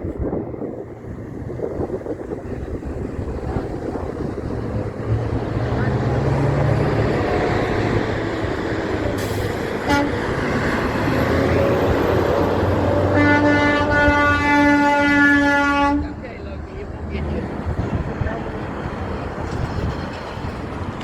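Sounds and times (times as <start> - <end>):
heavy truck passing: 0.0 - 21.0
multi-tone air horn blast: 9.8 - 10.3, 11.6 - 16.1.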